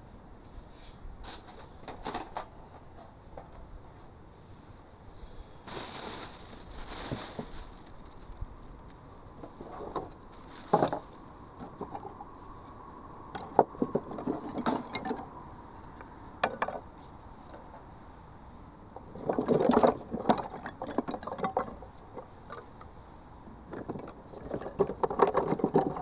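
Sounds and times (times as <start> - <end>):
camp gear rustling: 5.6 - 8.8, 9.4 - 12.8.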